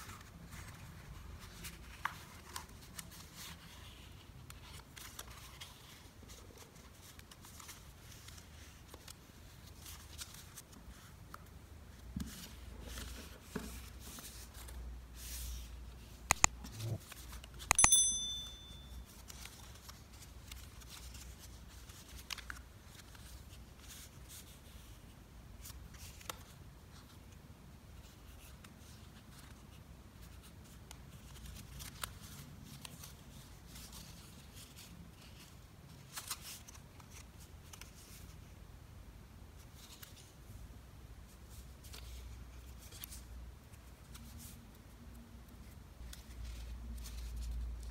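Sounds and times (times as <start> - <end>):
paper rustling and creasing: 0.0 - 11.2
sharp clicks: 16.3 - 16.5
high metallic ring: 17.7 - 19.1.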